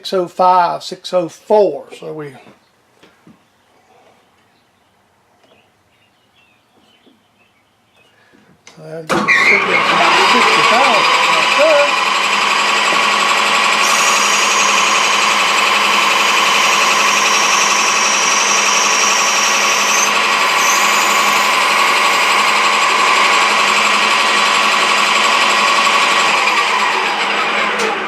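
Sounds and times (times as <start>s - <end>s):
lathe cutting drone: 9.3s - 28.0s
higher hiss: 13.8s - 24.2s.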